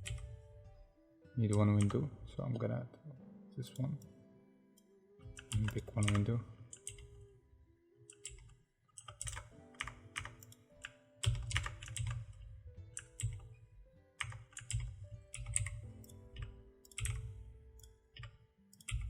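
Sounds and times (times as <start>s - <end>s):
dull thumps of typing: 0.0s - 0.7s, 8.3s - 13.5s, 14.2s - 19.0s
keyboard key clicks: 5.3s - 7.3s, 8.1s - 13.5s, 14.2s - 19.0s.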